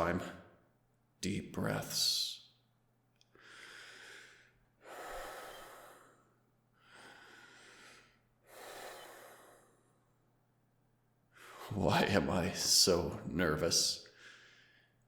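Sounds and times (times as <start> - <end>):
man breathing deeply: 3.3 - 10.2, 11.3 - 11.8, 14.0 - 15.0.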